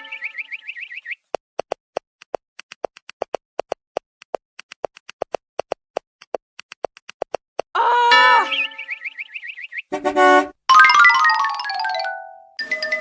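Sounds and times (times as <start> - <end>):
sharp clicking taps: 1.2 - 7.7.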